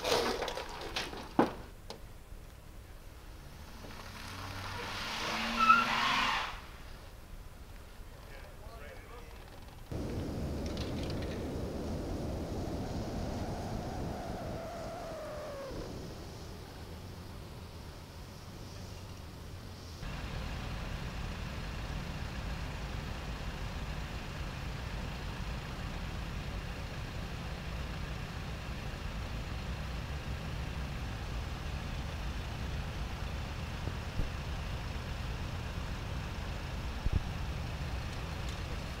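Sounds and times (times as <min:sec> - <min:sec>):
engine idling: 0:08.3 - 0:39.0.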